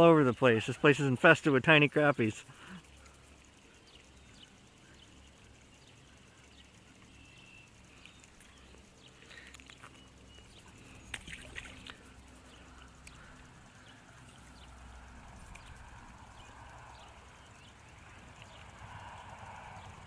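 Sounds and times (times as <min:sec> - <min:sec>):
sharp clicks: 0:07.9 - 0:12.1, 0:12.7 - 0:14.5, 0:15.2 - 0:16.7.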